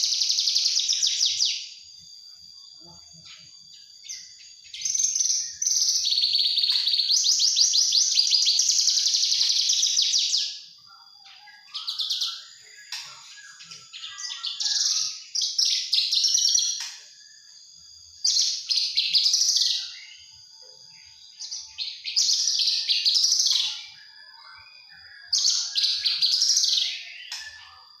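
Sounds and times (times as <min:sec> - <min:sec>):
bird singing buzzy trills: 0:00.0 - 0:28.0
faint steady high tone: 0:10.3 - 0:28.0.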